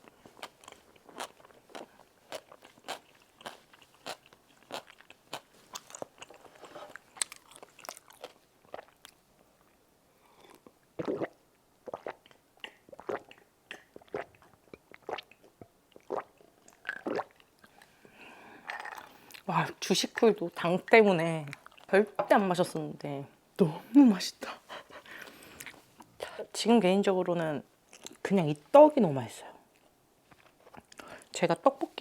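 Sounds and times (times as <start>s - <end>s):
person chewing crunchy food: 0.0s - 9.2s, 18.6s - 19.5s.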